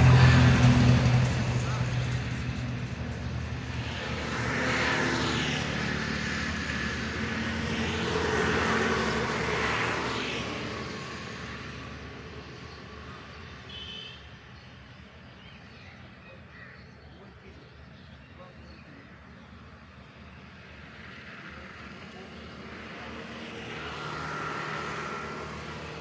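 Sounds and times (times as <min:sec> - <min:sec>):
vehicles passing on road: 0:00.0 - 0:26.0.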